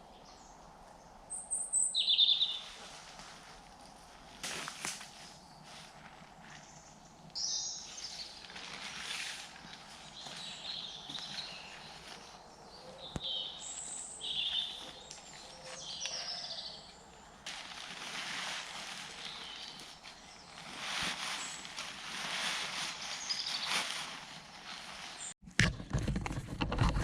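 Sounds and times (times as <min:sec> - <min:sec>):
woodland birds singing: 0:00.0 - 0:02.8, 0:05.2 - 0:17.5, 0:18.5 - 0:21.9, 0:23.0 - 0:25.4
rustling of camping gear: 0:02.4 - 0:27.0.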